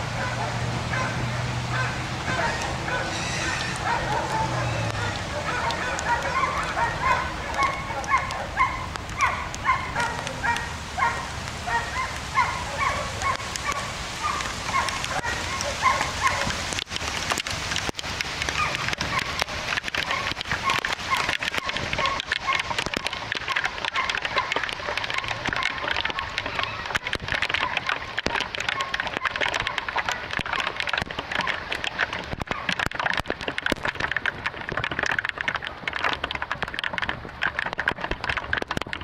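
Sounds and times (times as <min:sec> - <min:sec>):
rain hiss: 0:00.0 - 0:39.0
water drip clicks: 0:00.1 - 0:39.0
animal calling in short calls: 0:02.3 - 0:09.4.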